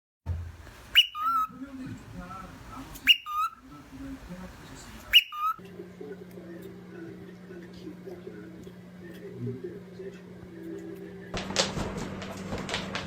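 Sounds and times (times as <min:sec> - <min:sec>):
shrill whistled call: 0:00.9 - 0:01.6, 0:03.0 - 0:03.6, 0:05.1 - 0:05.6.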